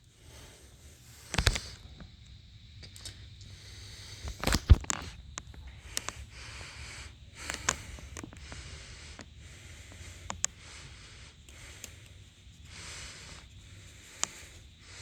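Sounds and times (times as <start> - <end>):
kitten breathing softly: 0.0 - 15.0
clicks: 1.3 - 2.1, 4.2 - 10.8.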